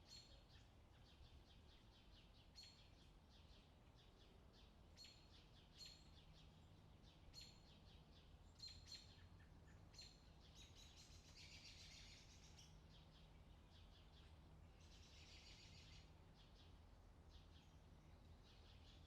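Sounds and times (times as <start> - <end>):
faint low hum: 0.0 - 19.0
birds chirping and trilling: 5.0 - 19.0.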